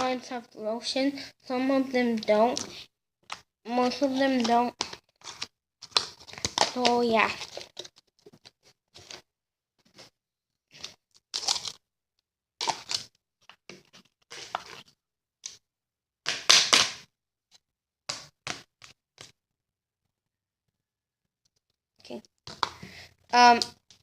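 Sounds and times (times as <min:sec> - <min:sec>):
slime squelching: 0:01.7 - 0:08.0, 0:12.6 - 0:13.1, 0:13.8 - 0:14.9.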